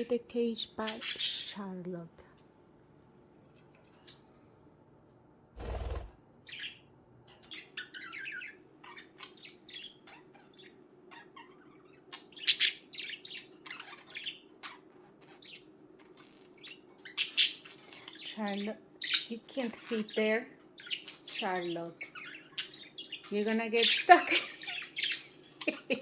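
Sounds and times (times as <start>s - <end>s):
budgerigars chirping: 0.8s - 1.6s, 5.6s - 6.8s, 7.5s - 25.4s.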